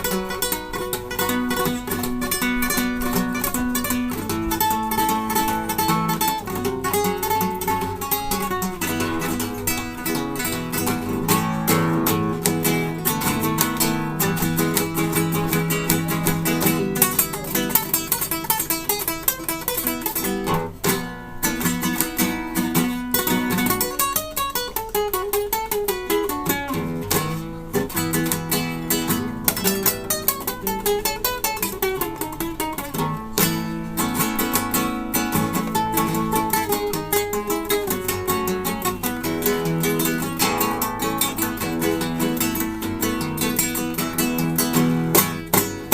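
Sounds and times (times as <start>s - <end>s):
acoustic guitar playing: 0.0s - 45.9s.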